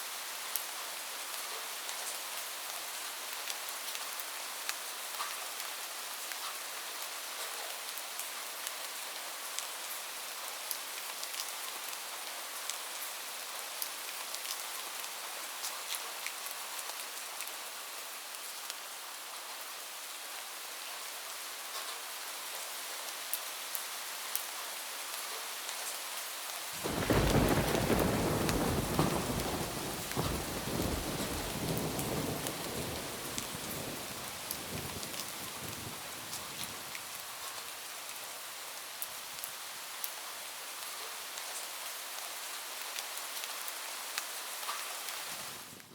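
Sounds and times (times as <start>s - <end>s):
heavy rain on a roof: 0.0s - 45.9s
raindrops ticking: 26.8s - 35.6s
deep rumble of thunder: 26.8s - 36.9s.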